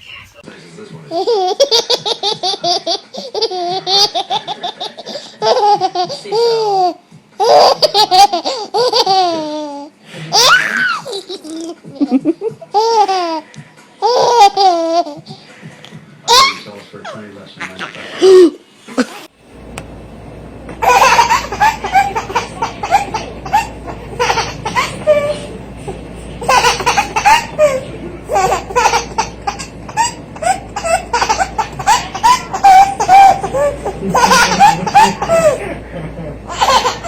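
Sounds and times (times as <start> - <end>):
baby giggling: 1.1 - 13.4, 14.0 - 15.3, 20.8 - 25.6, 26.4 - 35.8, 36.5 - 37.0.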